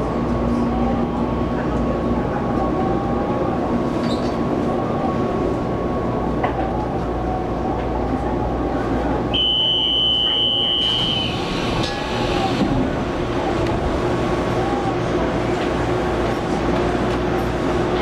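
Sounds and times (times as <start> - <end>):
train wheels and motors rumbling: 10.0 - 18.0.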